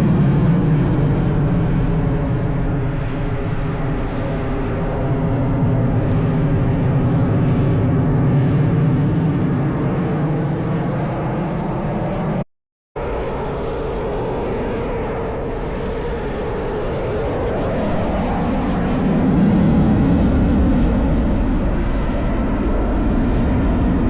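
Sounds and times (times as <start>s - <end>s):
propeller aircraft engines droning: 0.0s - 12.4s.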